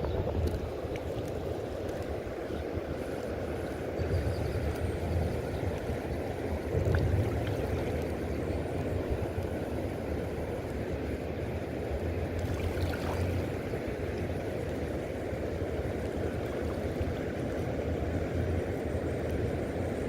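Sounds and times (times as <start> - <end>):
river water rushing: 12.2 - 18.2.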